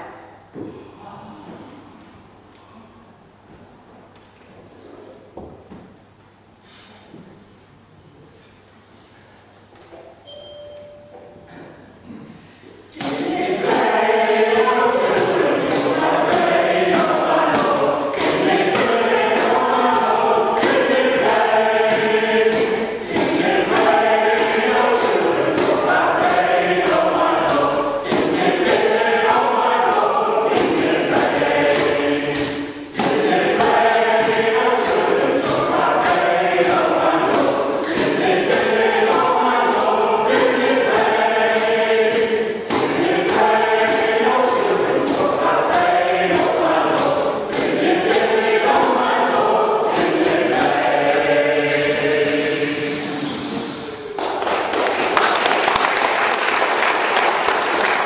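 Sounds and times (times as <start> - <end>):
choir singing: 12.9 - 54.2
percussive beat: 13.0 - 55.0.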